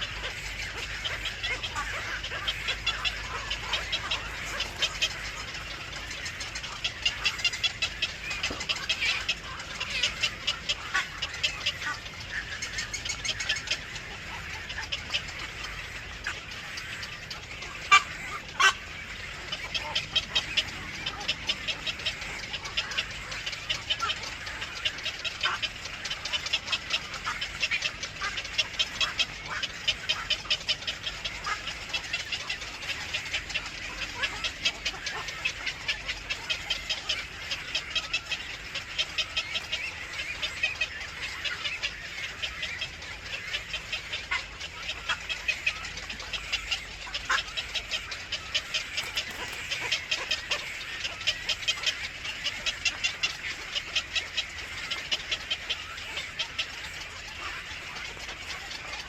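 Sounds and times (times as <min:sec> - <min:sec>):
nestlings cheeping: 0:48.9 - 0:50.1.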